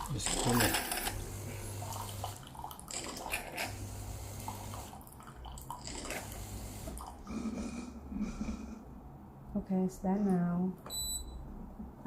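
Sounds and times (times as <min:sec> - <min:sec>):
low pump hum: 0:01.1 - 0:10.2.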